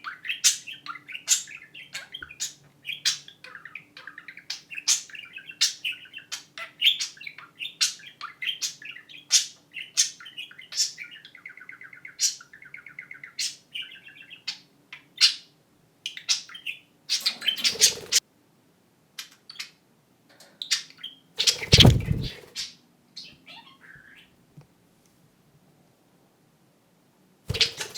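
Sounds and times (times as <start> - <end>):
budgerigars warbling and chattering: 16.6 - 18.2, 21.4 - 22.6, 27.5 - 27.9.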